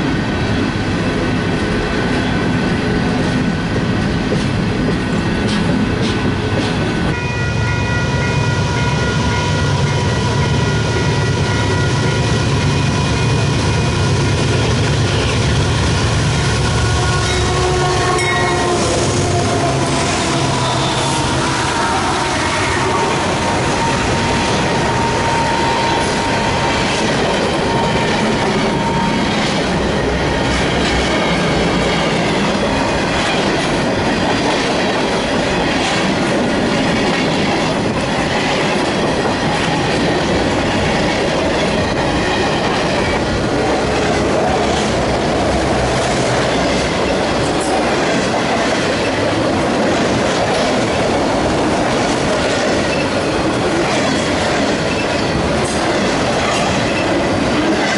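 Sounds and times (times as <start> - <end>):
train wheels clacking over rail joints: 4.2 - 7.1, 17.3 - 57.9.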